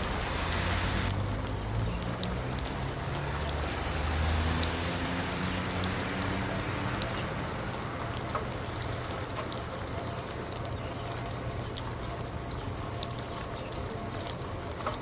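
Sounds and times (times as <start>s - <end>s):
drops ticking: 0.0s - 10.8s
rain on hard surfaces: 0.0s - 15.0s.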